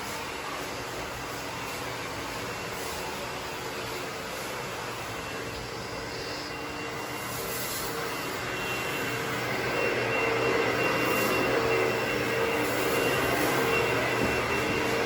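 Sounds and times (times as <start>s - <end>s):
machine motor humming with whine: 0.0s - 15.0s
rushing hiss: 5.4s - 9.4s.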